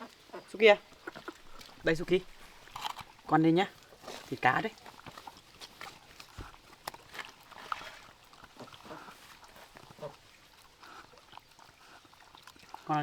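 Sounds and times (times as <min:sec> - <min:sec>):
pet eating clicks and taps: 0:03.8 - 0:08.8.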